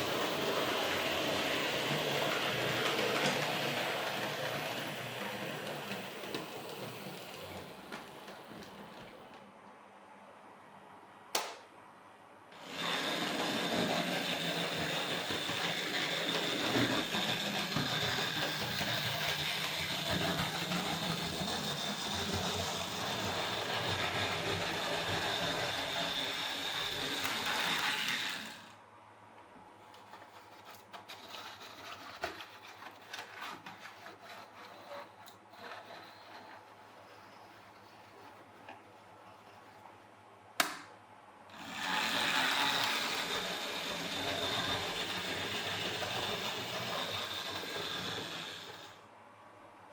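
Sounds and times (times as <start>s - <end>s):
model train wheels rattling: 12.6s - 28.8s, 41.5s - 49.0s.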